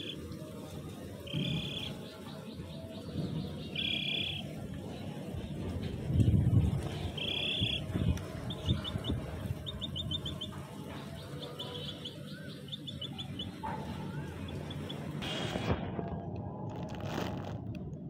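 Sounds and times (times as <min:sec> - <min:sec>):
high bird chirps: 0:01.2 - 0:04.5, 0:06.8 - 0:15.2.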